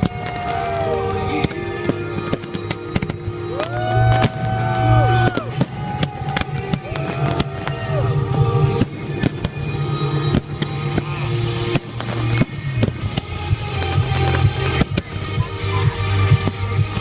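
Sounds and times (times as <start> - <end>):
fireworks bangs and crackles: 0.0 - 17.0
music with bass line: 0.0 - 17.0.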